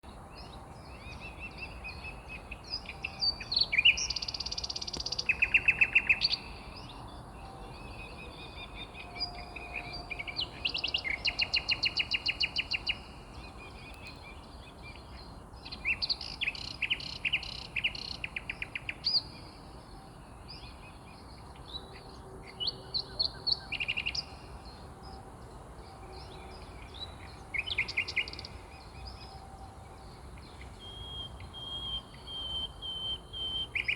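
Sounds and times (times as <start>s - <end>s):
songbirds singing and calling: 0.0s - 33.9s.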